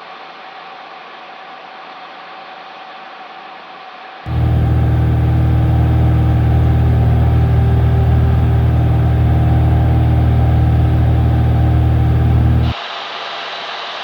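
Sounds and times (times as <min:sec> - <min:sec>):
light aircraft piston engine drone: 0:04.3 - 0:12.8.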